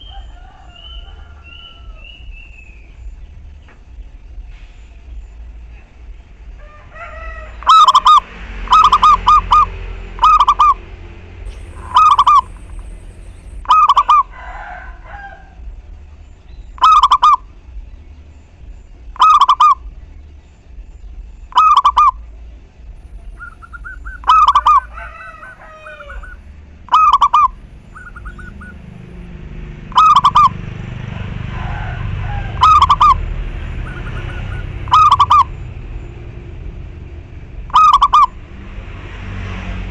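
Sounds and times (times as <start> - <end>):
low rumble: 0.0 - 39.9
small birds chirping: 11.4 - 14.2, 16.0 - 30.6
dove cooing: 11.5 - 15.5, 16.8 - 17.5, 23.0 - 35.6, 37.7 - 38.4.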